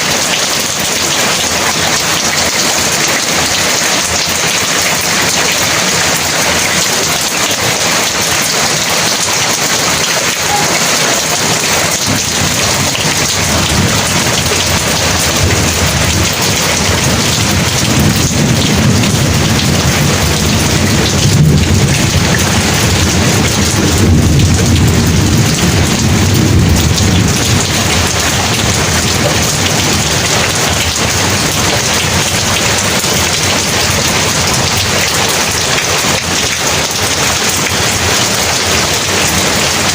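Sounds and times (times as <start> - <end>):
heavy rain falling: 0.0 - 39.9
thunder rumbling: 0.0 - 39.9.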